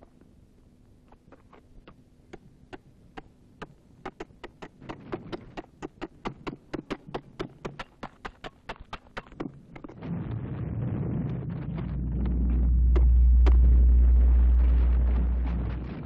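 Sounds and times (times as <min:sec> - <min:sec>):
faint low hum: 0:00.0 - 0:05.6, 0:09.4 - 0:16.0.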